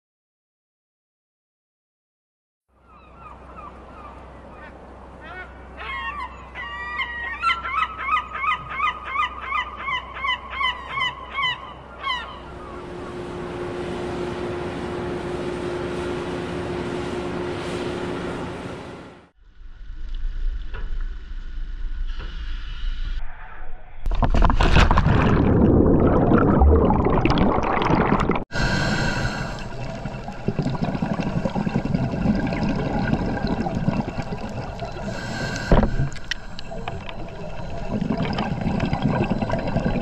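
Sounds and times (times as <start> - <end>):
bird honking calls: 2.9 - 13.3
low steady hum: 11.6 - 22.8, 24.0 - 40.0.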